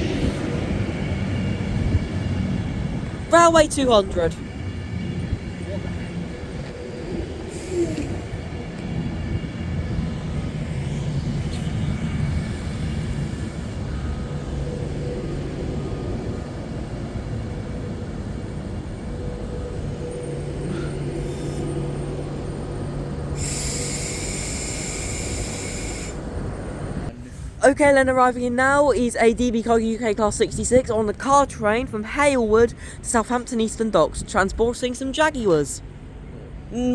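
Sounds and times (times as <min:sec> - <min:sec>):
train rumble and hum: 0:00.0 - 0:36.9
burst of hiss: 0:23.4 - 0:26.3.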